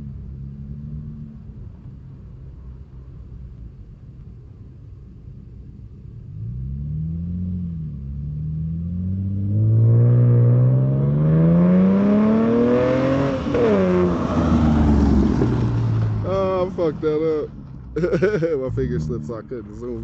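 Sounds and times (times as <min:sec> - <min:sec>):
car engine accelerating: 0:06.2 - 0:20.0.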